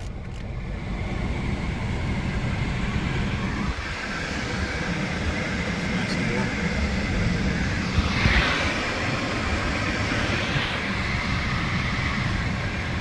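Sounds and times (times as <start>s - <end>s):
car engine idling: 0.0s - 13.0s
rush of fan air: 0.6s - 13.0s.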